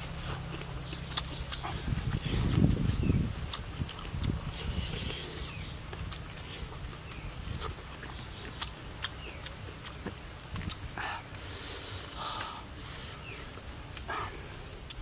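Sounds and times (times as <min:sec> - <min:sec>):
chewing and lip-smacking: 0:00.0 - 0:10.9.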